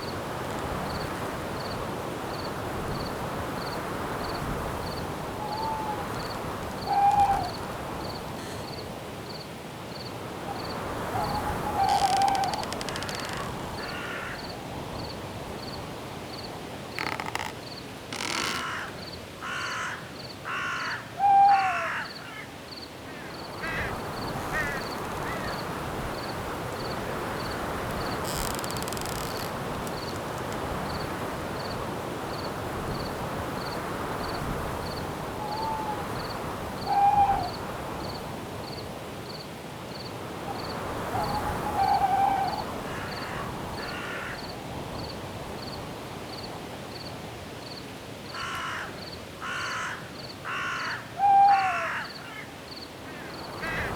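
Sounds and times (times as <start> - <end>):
wind hiss in trees: 0.0 - 53.9
cricket chirping: 0.8 - 20.9, 22.0 - 49.2, 52.0 - 53.9
short bird calls: 11.2 - 14.4.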